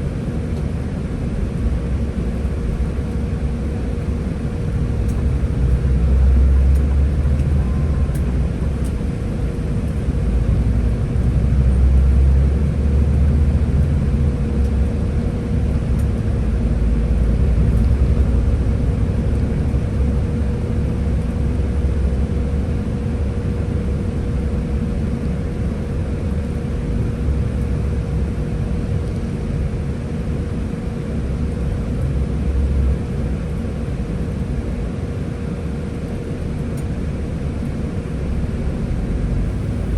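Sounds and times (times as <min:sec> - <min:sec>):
bus engine low rumble: 0:00.0 - 0:39.9
steady whine: 0:00.0 - 0:39.9.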